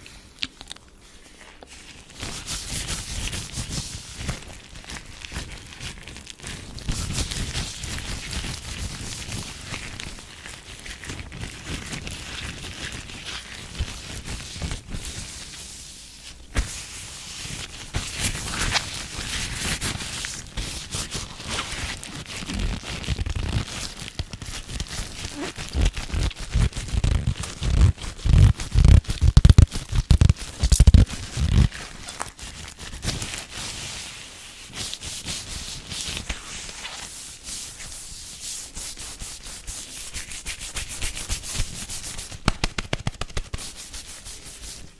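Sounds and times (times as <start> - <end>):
hands rubbing near microphone: 24.5 - 44.9
thumps of hands on microphone: 28.9 - 31.7, 42.4 - 43.5.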